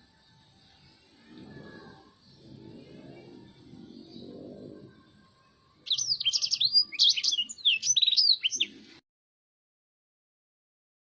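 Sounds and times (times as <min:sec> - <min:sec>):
faint low rumble: 0:01.0 - 0:05.8
canary singing: 0:01.5 - 0:08.8.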